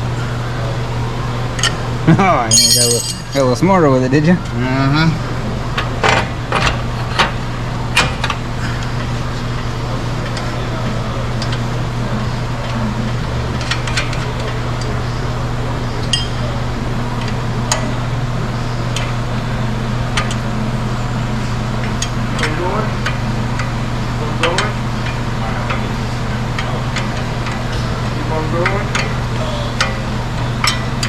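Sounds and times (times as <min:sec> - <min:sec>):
steady low hum: 0:00.0 - 0:31.0
metal clinks of hand tools: 0:02.5 - 0:03.4.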